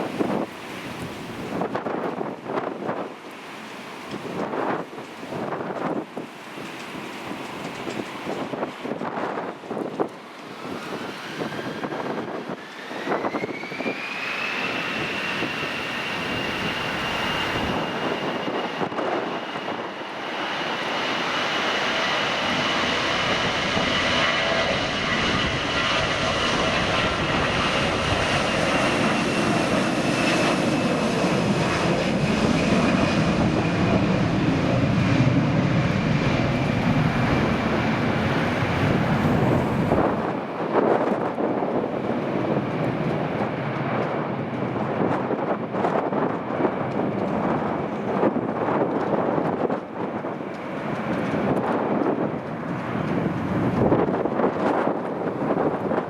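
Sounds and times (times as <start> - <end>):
jet engine whine: 0.0 - 56.0
deep engine rumble: 22.1 - 40.4.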